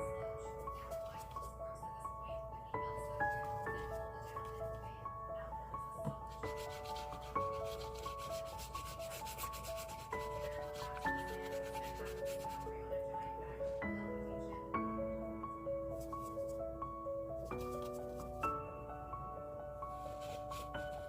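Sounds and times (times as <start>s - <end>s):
soft background music: 0.0s - 21.0s
rubbing strokes on paper: 6.2s - 12.8s, 17.4s - 18.4s, 20.0s - 21.0s.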